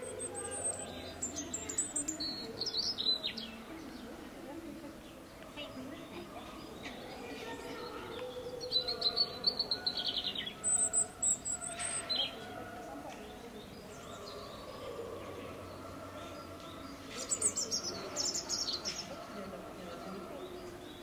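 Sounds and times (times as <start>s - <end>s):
small bird trilling and chirping: 0.0s - 3.6s, 8.6s - 12.4s.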